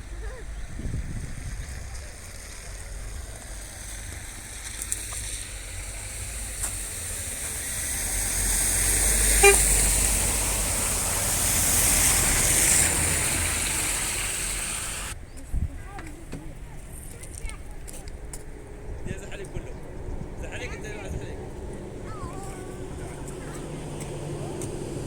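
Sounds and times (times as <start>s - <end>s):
vehicle passing by: 0.1s - 15.2s, 18.1s - 25.0s
short horn toot: 9.3s - 9.9s.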